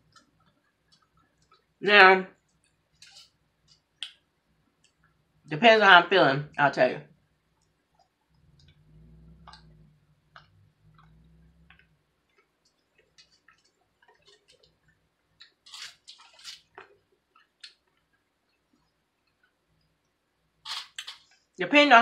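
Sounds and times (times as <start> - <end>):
low hum: 8.2 - 12.5
chewing crunchy noodles: 10.3 - 18.1.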